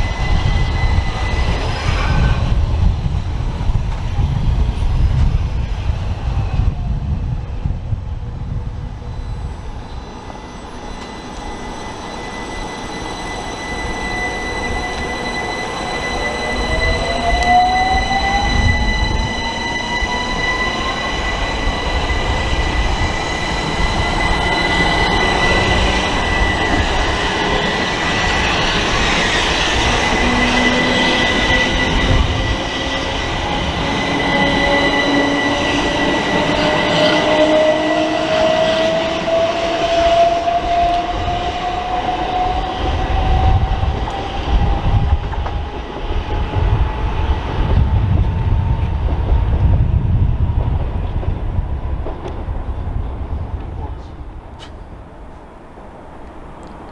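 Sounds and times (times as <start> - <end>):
steady high whistle: 0.0 - 7.6, 8.8 - 48.9
train rumbling on rails: 0.0 - 56.9
train motor whine rising: 8.9 - 49.9.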